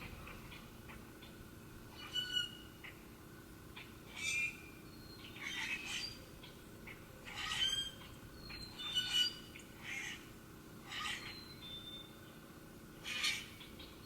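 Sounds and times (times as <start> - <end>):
bird squawking: 4.1 - 4.6, 6.9 - 11.5, 13.0 - 13.8.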